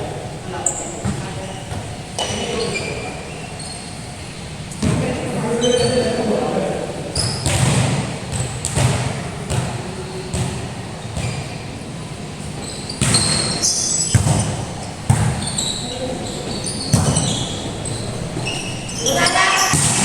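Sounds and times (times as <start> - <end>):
players' voices echoing: 0.0 - 20.0
basketball bouncing on court floor: 0.7 - 2.8, 7.2 - 11.6, 12.9 - 20.0.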